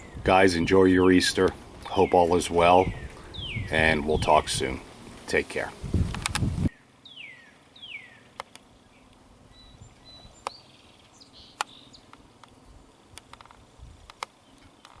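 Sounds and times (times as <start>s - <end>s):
thin high bird calls: 1.8s - 4.6s, 6.7s - 13.0s.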